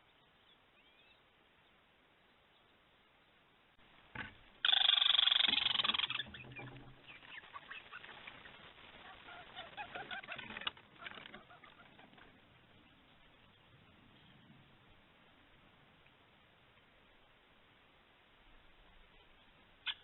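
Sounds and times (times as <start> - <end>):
bird calling harshly: 4.6 - 12.2.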